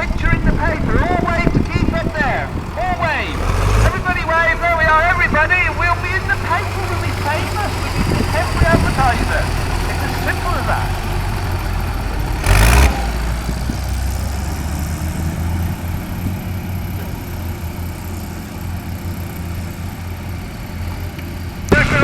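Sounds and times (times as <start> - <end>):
loud rush of noise: 0.0 - 14.0, 21.7 - 22.0
tractor engine running: 0.0 - 22.0.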